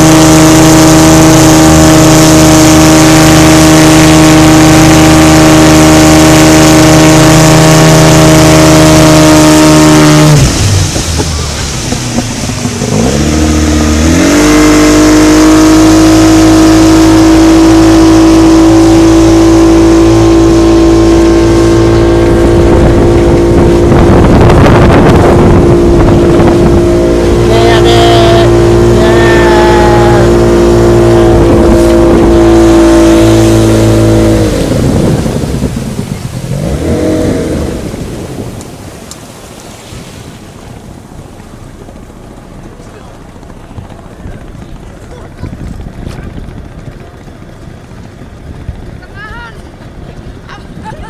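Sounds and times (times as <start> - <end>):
motorboat engine revving: 0.0 - 51.0.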